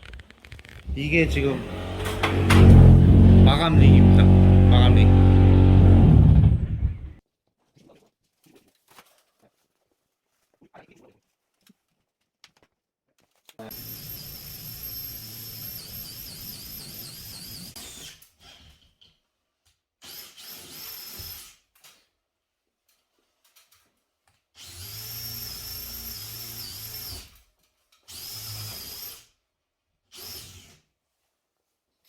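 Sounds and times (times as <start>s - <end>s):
power drill whining: 0.8s - 7.2s, 13.7s - 18.6s, 20.0s - 21.6s, 24.6s - 27.4s, 28.1s - 29.3s, 30.1s - 30.8s.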